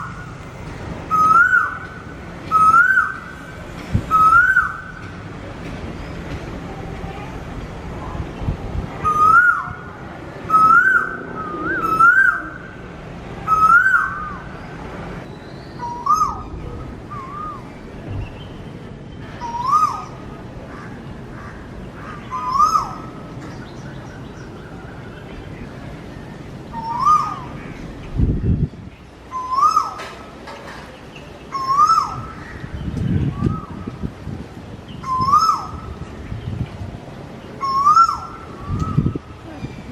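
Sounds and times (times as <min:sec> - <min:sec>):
bird whistled calls: 0:01.1 - 0:03.4, 0:04.1 - 0:05.0, 0:09.0 - 0:09.8, 0:10.5 - 0:12.8, 0:13.5 - 0:14.5, 0:15.2 - 0:18.6, 0:19.4 - 0:20.2, 0:26.8 - 0:27.6, 0:29.3 - 0:30.0, 0:31.5 - 0:32.6, 0:35.0 - 0:35.9, 0:37.6 - 0:39.9.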